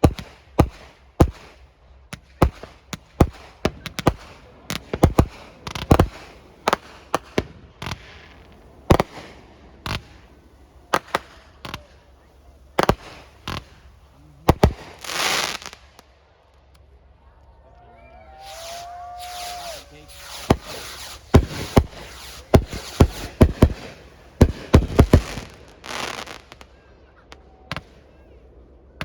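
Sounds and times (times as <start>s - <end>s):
fireworks bangs: 0.0s - 16.1s, 18.3s - 29.0s
firework hissing burst: 2.4s - 15.9s, 18.4s - 26.7s.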